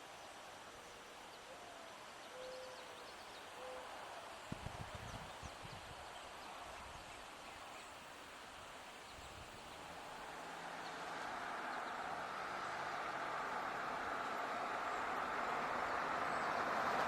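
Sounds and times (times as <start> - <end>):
faint bird chirps: 0.9 - 4.2
vehicle approaching: 9.8 - 17.0.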